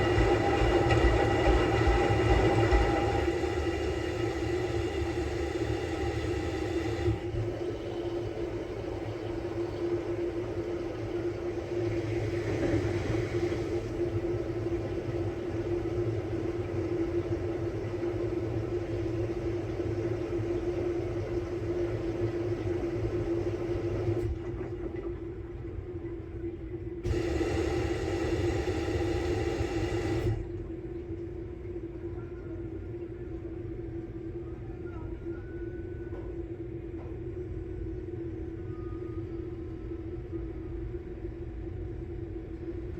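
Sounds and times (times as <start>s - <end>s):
washing machine hiss: 0.0s - 24.3s, 27.0s - 30.5s
washing machine motor hum: 0.0s - 32.0s.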